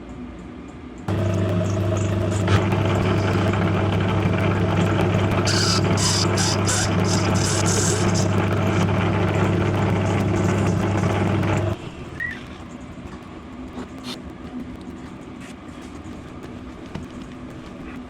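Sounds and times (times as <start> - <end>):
electric motor humming: 1.1 - 11.9.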